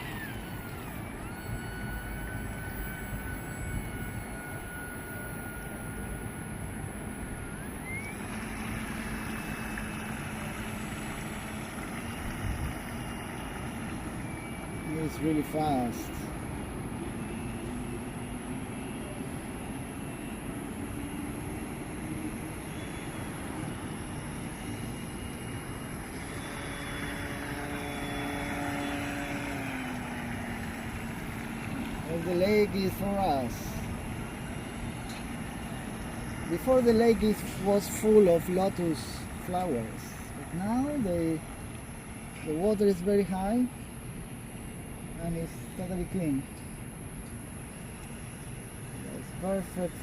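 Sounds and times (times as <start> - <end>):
electric motor whine: 0.0 - 42.7
outdoor hiss: 21.0 - 50.0.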